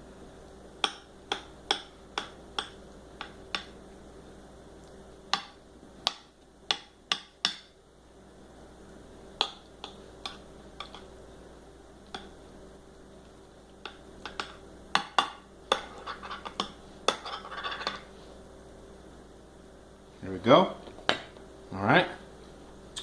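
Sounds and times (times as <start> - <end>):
faint steady hum: 0.0 - 23.0
spoon knocking against dish: 0.8 - 3.8, 9.4 - 11.1, 13.8 - 18.0.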